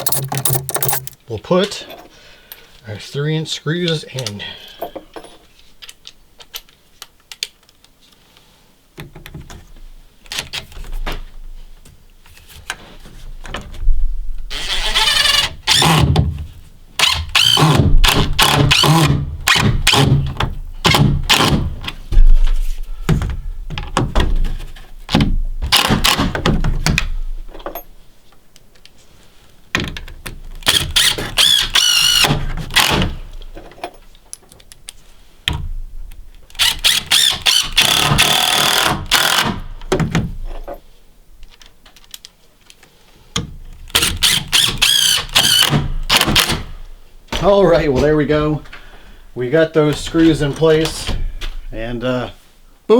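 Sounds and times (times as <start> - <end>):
power drill driving screws: 0.0 - 1.2, 14.5 - 16.1, 17.0 - 20.2, 30.6 - 33.1, 36.5 - 39.6, 43.9 - 46.6.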